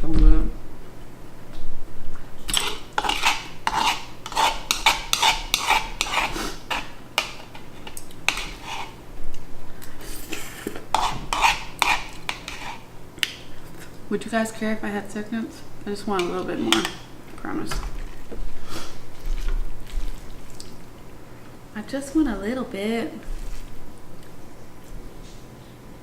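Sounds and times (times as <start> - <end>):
utensil scraping and clinking on dish: 2.5 - 9.0, 10.2 - 12.9, 16.1 - 18.9.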